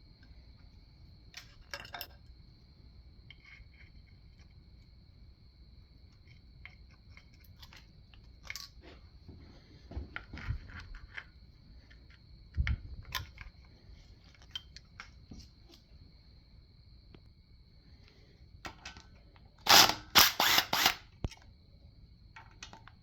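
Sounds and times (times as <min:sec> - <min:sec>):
hand tools clinking and knocking: 0:01.4 - 0:02.2.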